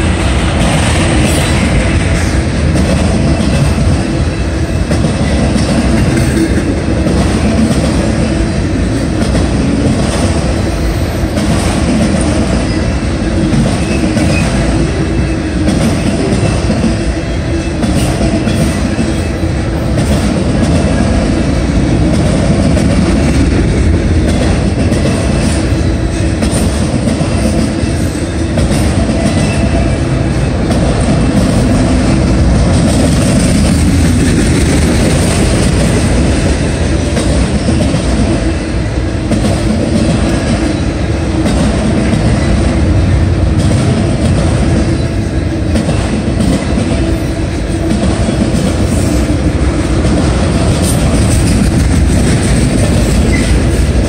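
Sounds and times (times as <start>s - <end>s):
freight train wheels rumbling: 0.0s - 54.0s
wheel clatter on rails: 47.8s - 54.0s.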